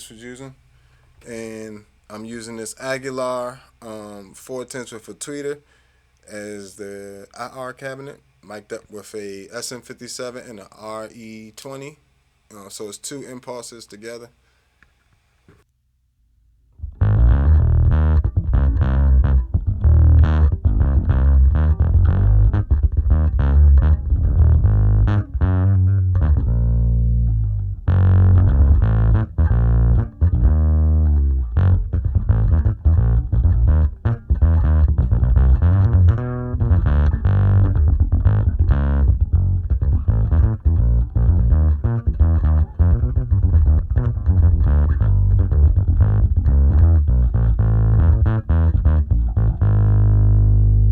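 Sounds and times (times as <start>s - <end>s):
distorted electric bass riff: 16.8s - 50.9s.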